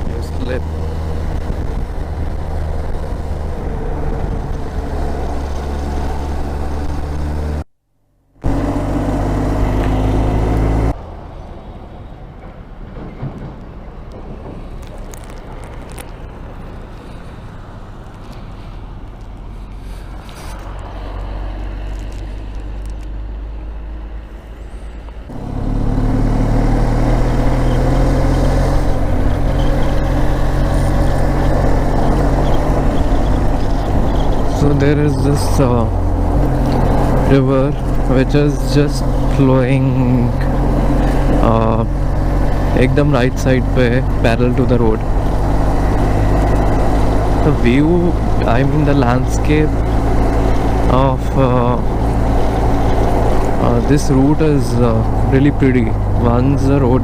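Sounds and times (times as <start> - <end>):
wind noise: 0.0 - 7.4, 26.6 - 38.1
motorcycle engine running: 25.3 - 34.8.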